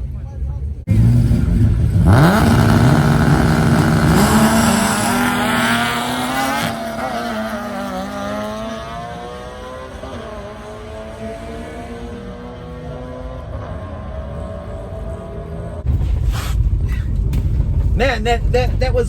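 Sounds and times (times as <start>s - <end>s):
car engine revving hard: 0.9s - 15.8s.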